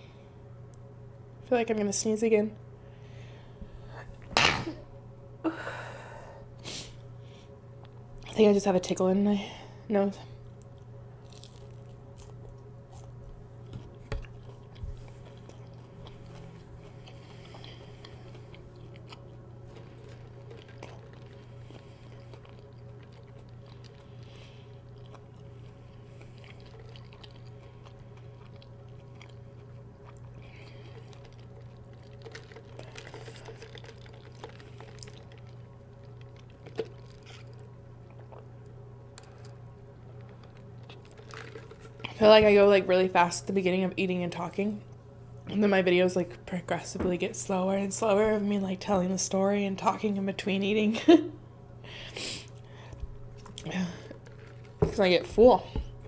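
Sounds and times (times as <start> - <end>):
steady low hum: 0.0 - 56.0
crunchy chewing: 10.6 - 42.2, 52.4 - 55.0.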